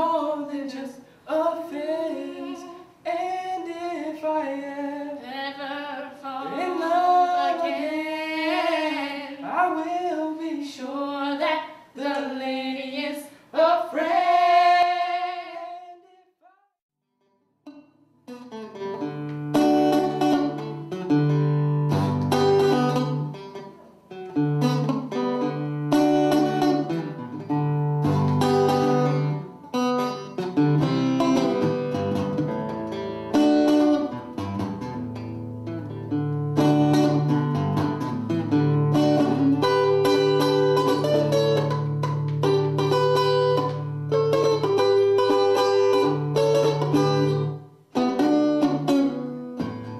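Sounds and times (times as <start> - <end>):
plucked string instrument melody: 17.6 - 49.9.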